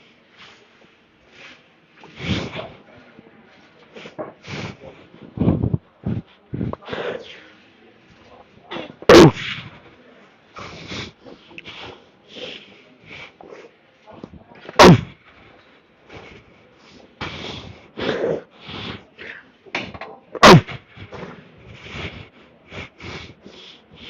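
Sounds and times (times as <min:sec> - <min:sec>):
breathing: 0:00.0 - 0:08.4, 0:09.4 - 0:14.4, 0:15.1 - 0:19.8, 0:20.6 - 0:24.0
soft scattered noises: 0:00.0 - 0:24.0.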